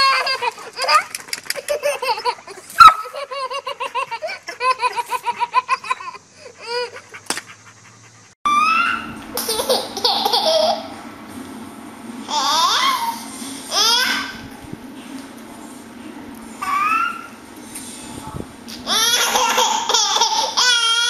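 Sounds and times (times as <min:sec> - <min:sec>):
baby belly-laughing: 0:00.0 - 0:07.0, 0:18.9 - 0:21.0
baby laughing and squealing: 0:00.0 - 0:07.1, 0:08.5 - 0:10.9, 0:12.3 - 0:14.4, 0:16.6 - 0:17.4, 0:18.8 - 0:21.0.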